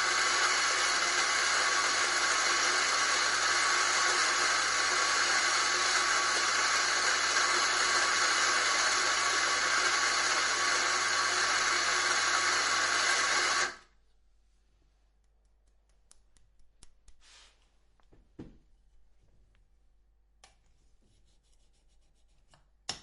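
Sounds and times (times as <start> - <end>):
electric coffee grinder whirring: 0.0 - 13.9.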